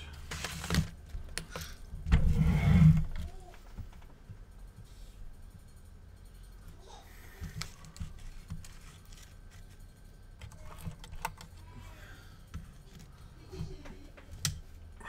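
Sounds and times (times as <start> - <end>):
steady low hum: 0.0 - 15.0
clicks and rattles of small parts: 7.4 - 11.7.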